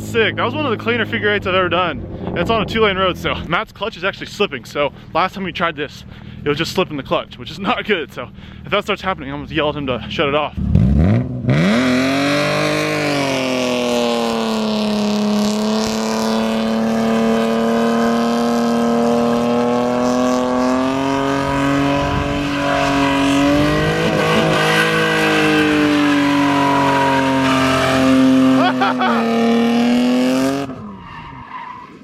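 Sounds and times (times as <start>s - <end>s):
car engine at high revs: 10.6s - 32.0s.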